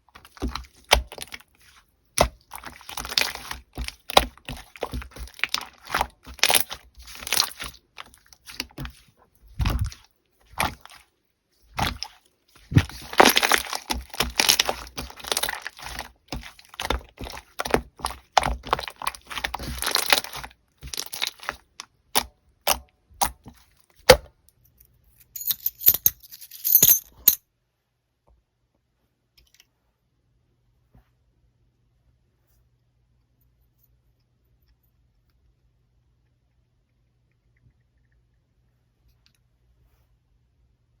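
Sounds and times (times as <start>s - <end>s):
slime crackling and popping: 2.2s - 8.8s, 11.8s - 21.6s.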